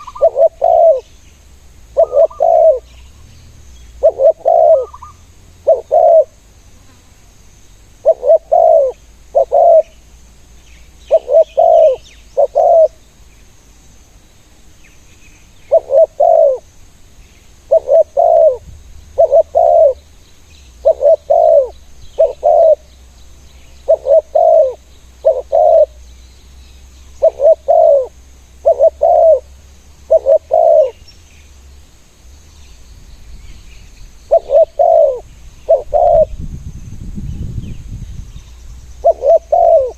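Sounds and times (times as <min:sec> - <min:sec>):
doves cooing: 0:00.0 - 0:01.2, 0:01.9 - 0:06.4, 0:08.0 - 0:09.9, 0:11.1 - 0:13.0, 0:15.7 - 0:16.7, 0:17.6 - 0:20.0, 0:20.8 - 0:22.9, 0:23.8 - 0:26.0, 0:27.2 - 0:31.0, 0:34.3 - 0:36.4, 0:39.0 - 0:39.9.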